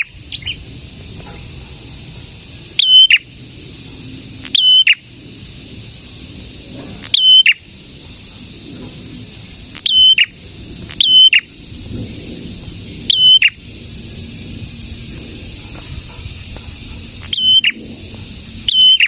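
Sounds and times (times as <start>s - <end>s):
songbird calling: 0.0s - 0.6s, 2.5s - 6.2s, 7.0s - 8.6s, 9.2s - 11.8s, 12.6s - 19.0s.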